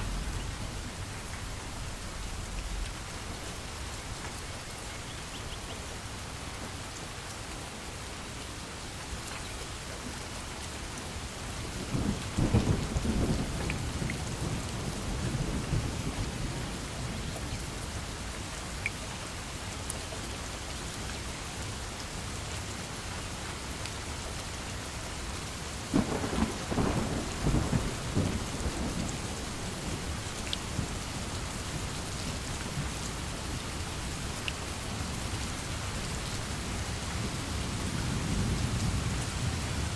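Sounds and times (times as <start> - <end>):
thunder rumbling: 0.0 - 4.2, 25.9 - 33.9
heavy rain: 0.0 - 39.9.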